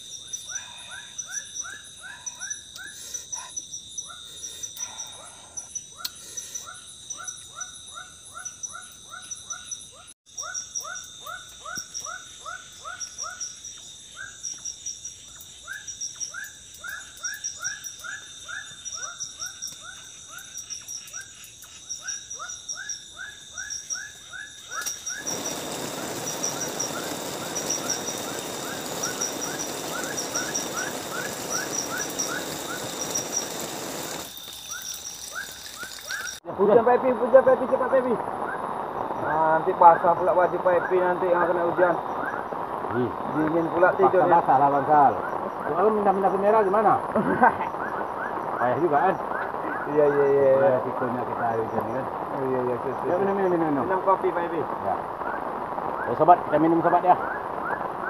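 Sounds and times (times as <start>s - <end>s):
high insect drone: 0.0s - 57.6s
rain hissing: 24.7s - 58.0s.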